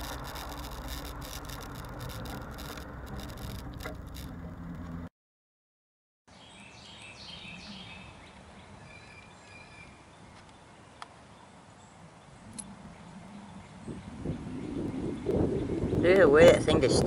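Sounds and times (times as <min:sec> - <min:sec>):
sharp clicks: 0:00.0 - 0:05.0
birds chirping: 0:06.3 - 0:16.4.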